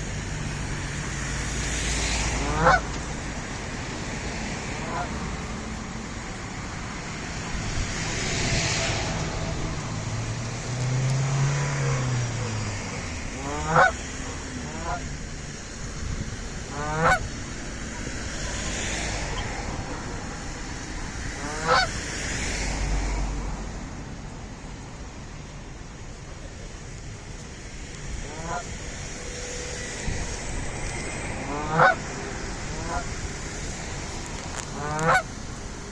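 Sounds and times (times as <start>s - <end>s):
steady background noise: 0.0s - 35.9s
geese honking: 2.3s - 3.0s, 4.7s - 5.2s, 11.8s - 15.2s, 16.6s - 18.1s, 21.4s - 21.9s, 28.2s - 28.7s, 31.4s - 33.2s, 34.6s - 35.3s.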